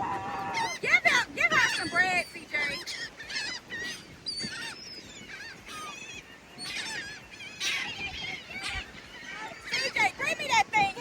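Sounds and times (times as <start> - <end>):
seagulls squawking: 0.0 - 10.9.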